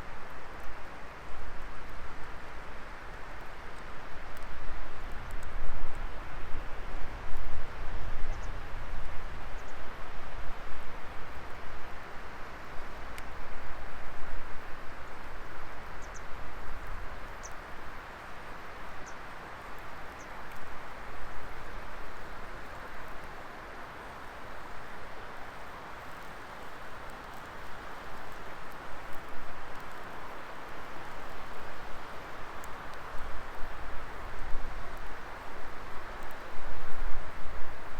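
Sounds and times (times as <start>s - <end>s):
fire crackles and pops: 0.1s - 9.5s, 10.1s - 37.9s
wood fire rushing hiss: 12.7s - 37.9s.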